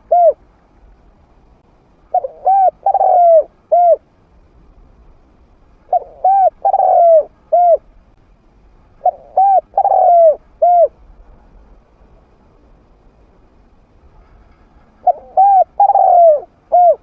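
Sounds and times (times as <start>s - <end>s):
dove cooing: 0.0s - 0.4s, 2.1s - 4.0s, 5.9s - 7.9s, 9.0s - 11.0s, 15.0s - 17.0s.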